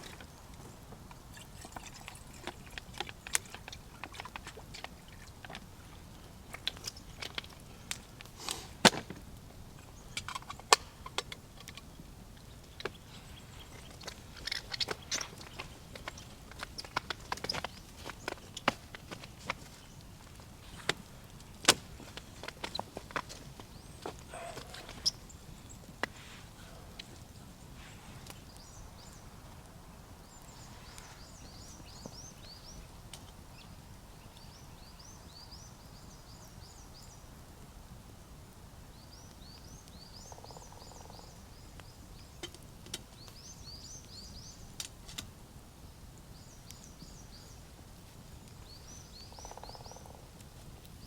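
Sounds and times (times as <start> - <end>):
steady outdoor hiss: 0.0 - 51.0
small bird chirping: 9.8 - 18.5, 39.0 - 42.5, 48.5 - 50.3.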